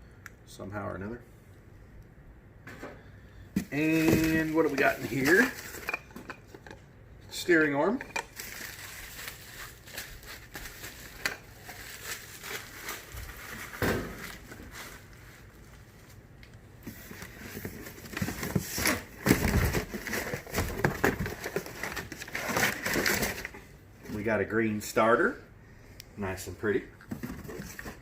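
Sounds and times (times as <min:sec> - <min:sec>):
plastic packaging crinkling: 0:03.6 - 0:06.2, 0:08.0 - 0:16.2.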